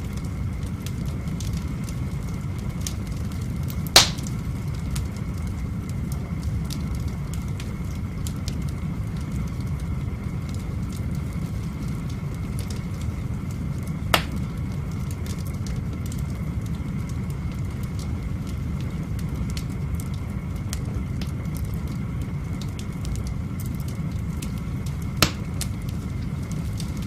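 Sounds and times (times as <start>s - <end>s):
fire crackling and snapping: 0.0s - 27.0s
low fire rumble: 0.0s - 27.0s
loud fire pop: 3.9s - 4.5s, 14.1s - 14.5s, 25.2s - 25.7s.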